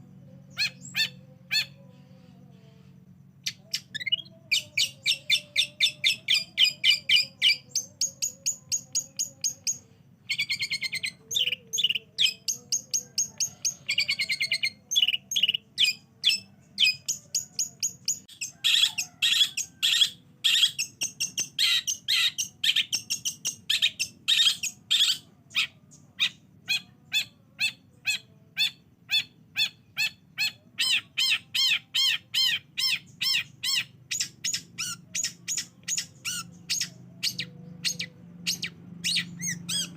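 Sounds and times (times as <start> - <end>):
faint steady hum: 0.0 - 39.9
bird singing sharp chirps: 28.1 - 39.9.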